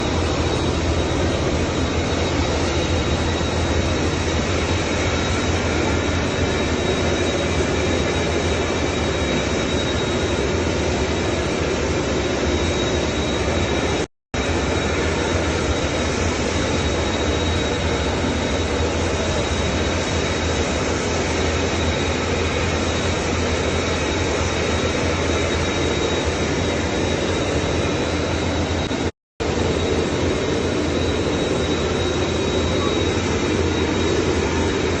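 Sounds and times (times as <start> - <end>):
jet engines running: 0.0 - 35.0.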